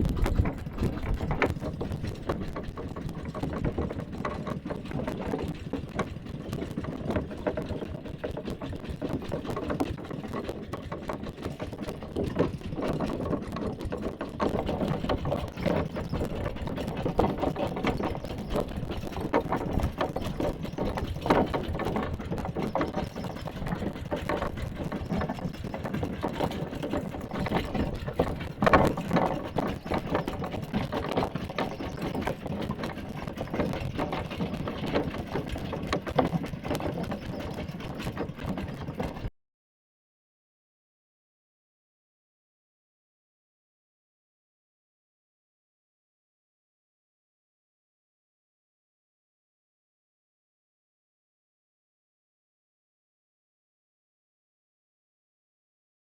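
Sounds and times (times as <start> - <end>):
knocks and rattles: 0.0 - 39.3
small tractor engine running: 0.0 - 39.3.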